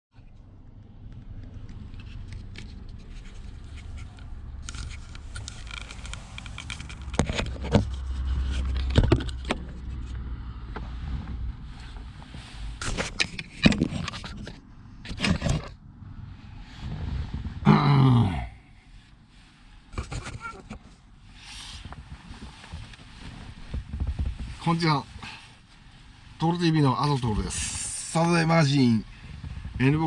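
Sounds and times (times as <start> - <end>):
low rumble: 0.3 - 12.8, 15.7 - 19.7, 27.2 - 30.0
sharp clicks and knocks: 0.4 - 10.2, 12.8 - 15.8
scraping and handling noises: 1.7 - 10.2, 10.8 - 15.8, 19.4 - 30.0.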